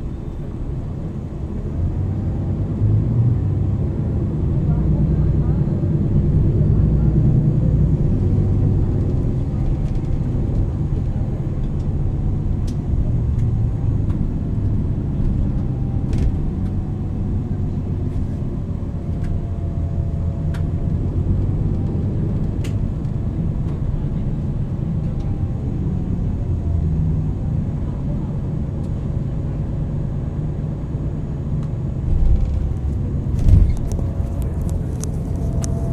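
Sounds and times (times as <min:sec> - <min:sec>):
bus engine rumble: 0:00.0 - 0:35.9.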